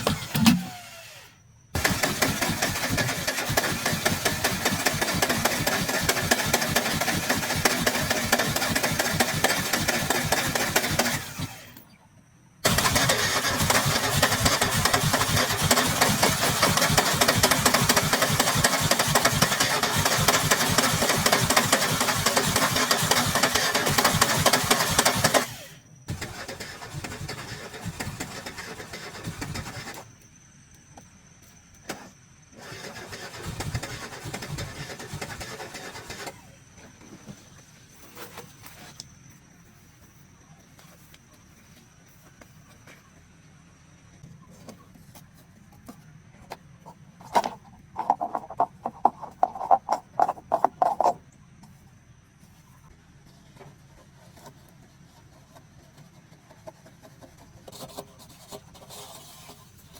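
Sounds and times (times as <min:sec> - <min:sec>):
car starter cranking engine: 0:00.0 - 0:11.8, 0:12.6 - 0:30.1, 0:32.6 - 0:36.6.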